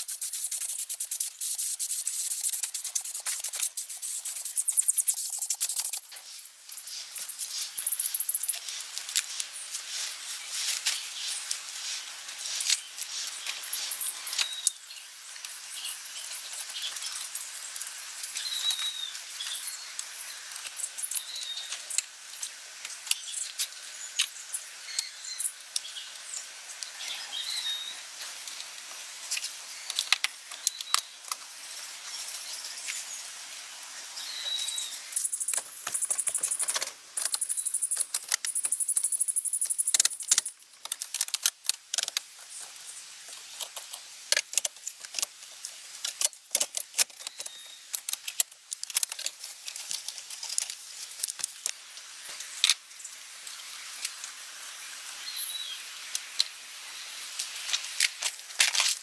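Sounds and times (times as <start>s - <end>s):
small objects clicking and rattling: 0.0s - 9.7s, 35.1s - 52.9s, 57.4s - 59.0s.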